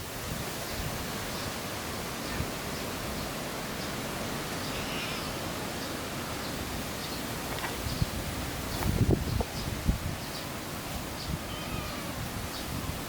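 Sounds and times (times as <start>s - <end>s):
faint high-pitched call: 4.6s - 5.4s, 11.2s - 12.2s
wind rushing: 7.7s - 10.3s.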